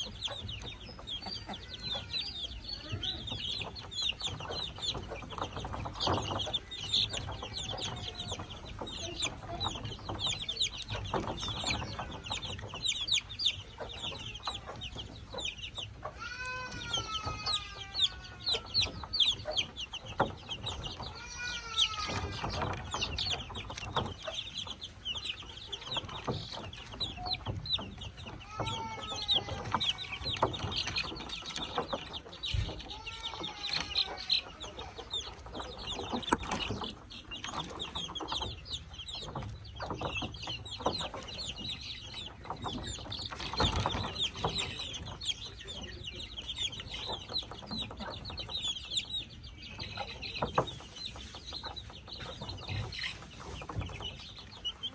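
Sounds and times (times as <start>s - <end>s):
chicks peeping: 0.0s - 54.9s.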